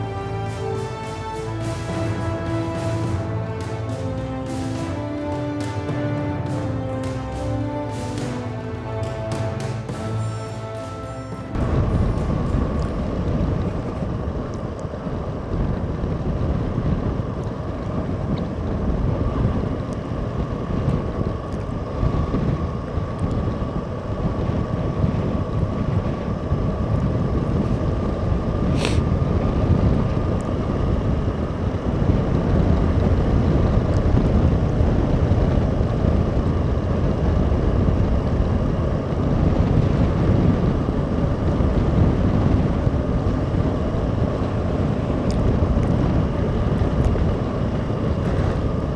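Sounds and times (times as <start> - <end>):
steady high whine: 0.0 - 48.9
wind buffeting microphone: 11.5 - 48.9.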